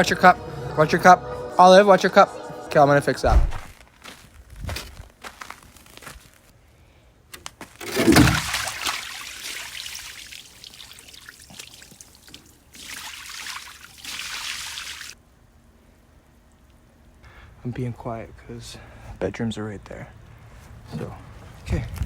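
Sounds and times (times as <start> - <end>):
hose spraying water: 7.8 - 15.2
water gushing from hose: 7.8 - 15.2.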